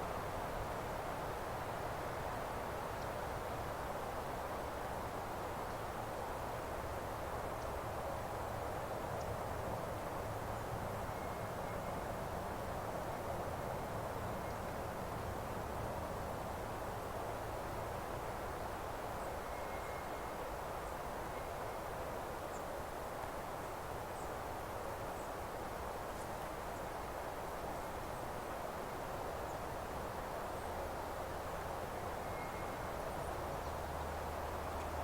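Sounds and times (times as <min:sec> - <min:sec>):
rushing outdoor background noise: 0:00.0 - 0:35.0
faint high bird chirps: 0:32.2 - 0:32.9.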